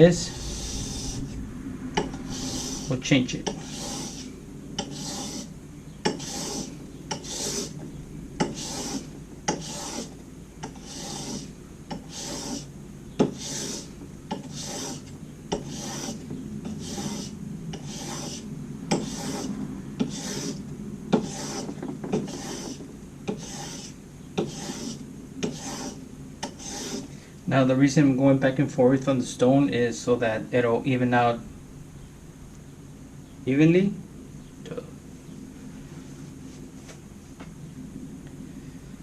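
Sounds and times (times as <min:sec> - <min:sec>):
chisel scraping on sharpening stone: 0:03.5 - 0:04.2, 0:04.8 - 0:05.5, 0:06.1 - 0:07.7, 0:08.4 - 0:20.6, 0:21.2 - 0:27.1.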